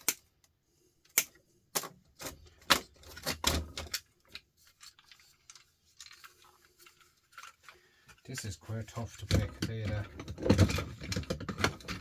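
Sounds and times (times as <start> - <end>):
hard objects clicking and knocking: 7.3 - 12.0.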